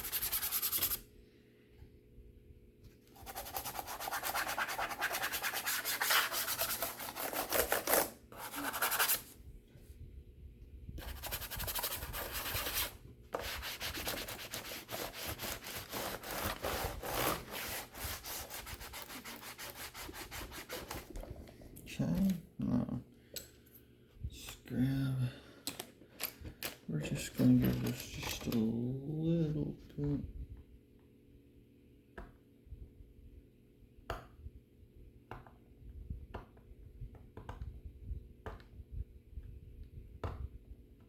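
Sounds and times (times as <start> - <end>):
rubbing on plastic laptop case: 3.2 - 9.4, 11.0 - 21.5.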